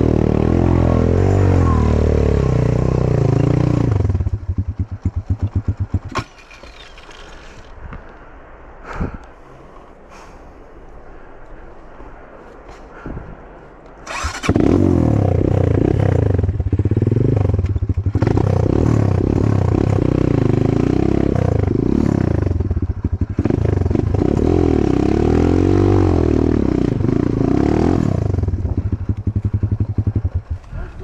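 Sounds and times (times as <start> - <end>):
motorcycle engine revving: 0.0 - 7.1, 14.1 - 31.0.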